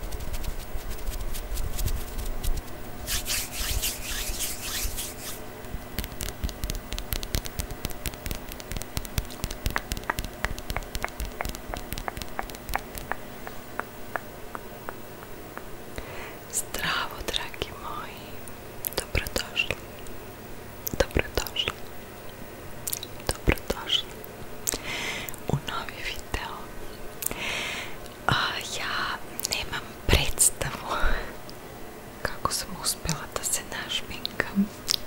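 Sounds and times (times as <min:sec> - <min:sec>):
scratchy rubbing: 0:00.0 - 0:13.2.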